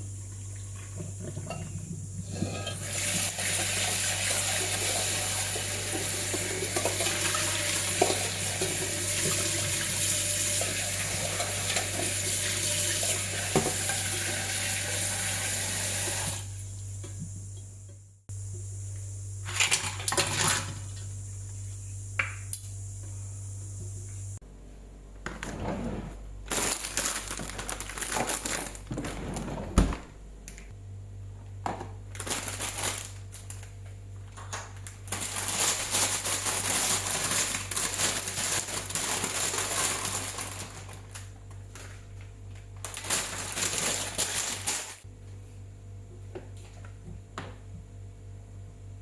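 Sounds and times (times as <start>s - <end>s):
rustling and crinkling: 25.2s - 30.7s, 34.9s - 45.0s.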